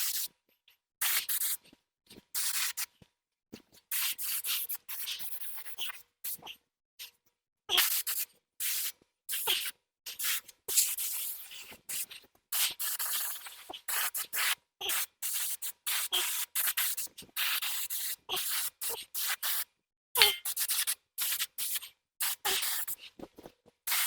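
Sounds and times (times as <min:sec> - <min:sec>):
spray paint hissing bursts: 0:00.0 - 0:00.3, 0:01.0 - 0:01.6, 0:02.4 - 0:02.9, 0:03.9 - 0:06.4, 0:07.8 - 0:23.1.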